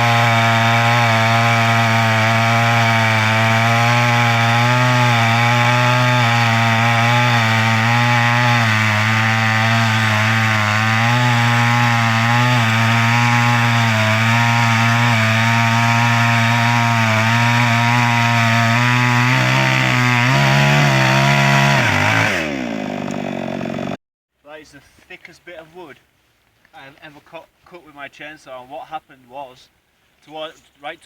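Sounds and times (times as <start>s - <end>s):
chainsaw cutting log: 0.0s - 24.0s.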